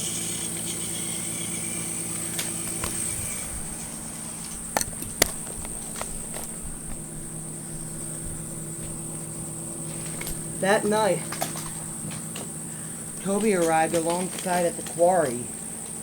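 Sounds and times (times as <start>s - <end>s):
toy train motor whirring: 0.0s - 7.0s.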